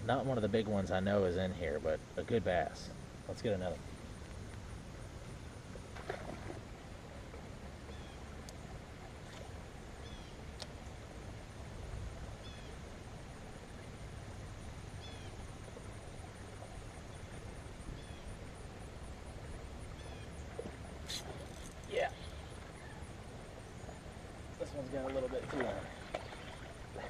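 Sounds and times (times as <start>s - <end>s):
low steady rumble: 0.0s - 27.0s
bird chirping: 7.9s - 8.3s, 10.0s - 10.4s, 12.4s - 12.8s, 15.0s - 15.8s, 16.4s - 18.4s, 19.9s - 24.8s.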